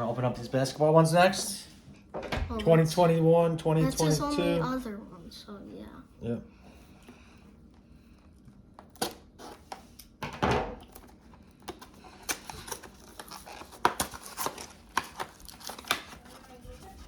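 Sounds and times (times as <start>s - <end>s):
card packaging clicks and rustles: 10.8s - 17.0s.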